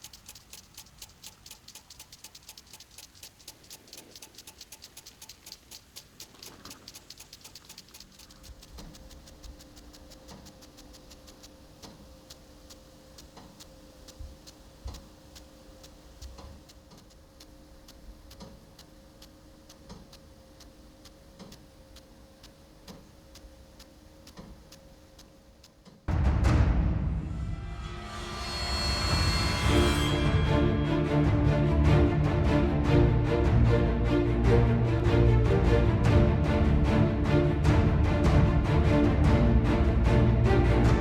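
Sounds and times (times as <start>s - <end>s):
irrigation sprinkler ticking: 0.0s - 26.1s
steady low hum: 0.0s - 41.0s.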